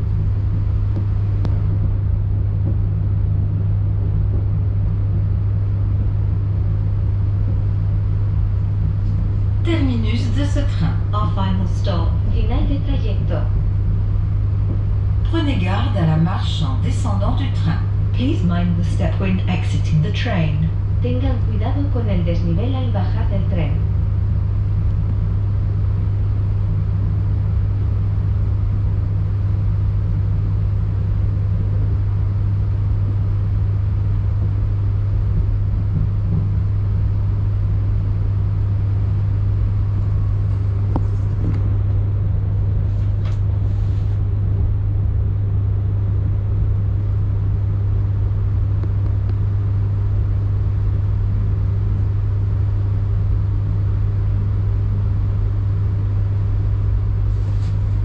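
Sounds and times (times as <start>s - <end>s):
train machinery humming: 7.1s - 24.0s.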